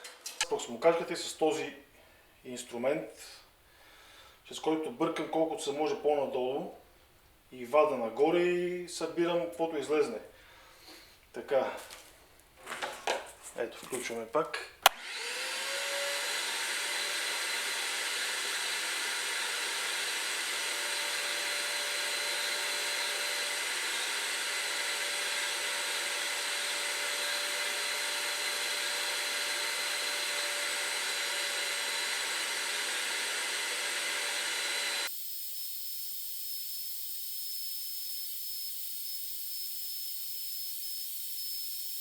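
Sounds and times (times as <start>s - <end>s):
vacuum cleaner motor whine: 14.9s - 42.0s.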